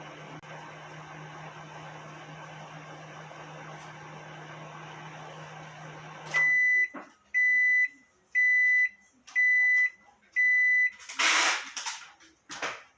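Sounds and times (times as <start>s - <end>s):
microwave oven humming: 0.0s - 6.9s
microwave beeps: 6.3s - 11.0s.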